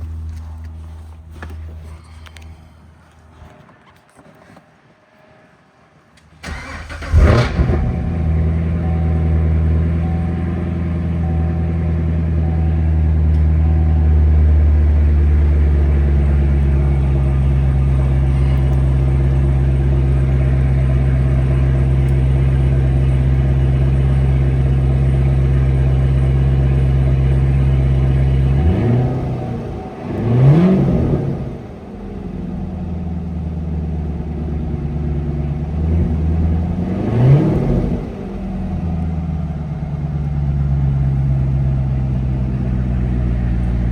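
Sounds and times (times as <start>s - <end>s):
car engine idling: 0.0s - 3.6s, 6.4s - 43.9s
engine starter cranking: 6.4s - 8.4s.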